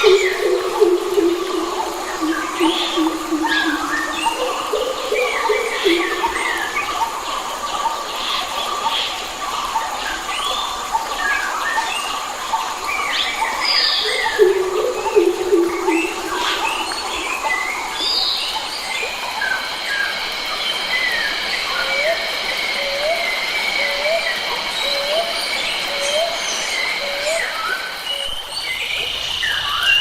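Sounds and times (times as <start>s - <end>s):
birds chirping and whistling: 0.0s - 7.0s
lower-pitched bird call: 0.0s - 7.1s
steady background drone: 0.0s - 8.2s, 14.1s - 18.3s.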